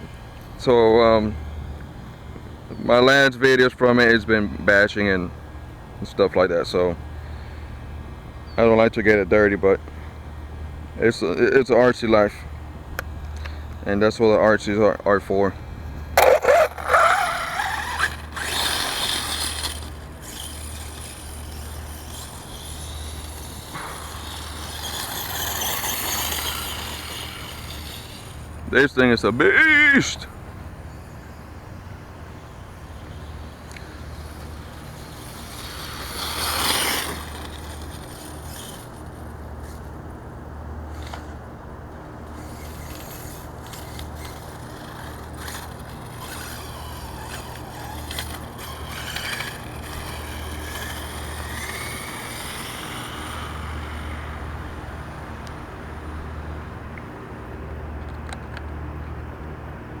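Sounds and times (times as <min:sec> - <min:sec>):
rc truck motor whine: 0:00.0 - 0:57.0.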